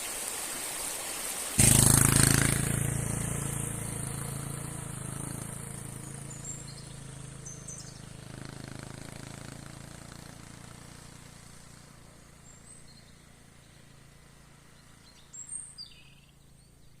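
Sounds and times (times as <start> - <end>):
bird chirps: 4.9 - 8.2, 12.1 - 17.0.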